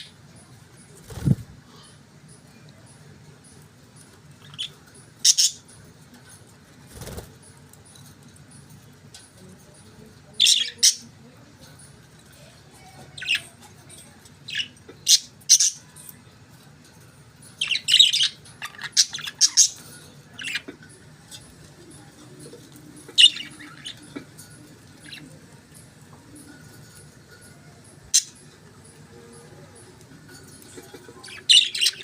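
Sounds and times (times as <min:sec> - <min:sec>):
faint low hum: 0:00.0 - 0:32.0
budgerigars chirping and squawking: 0:04.4 - 0:05.7, 0:14.5 - 0:15.9, 0:17.5 - 0:25.4, 0:30.3 - 0:32.0.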